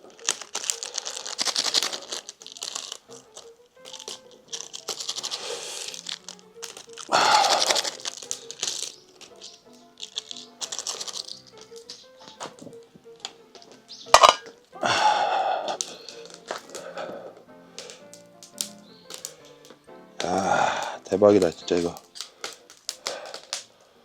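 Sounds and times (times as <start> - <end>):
background music: 0.0 - 24.0
wood fire crackling and popping: 0.0 - 24.0.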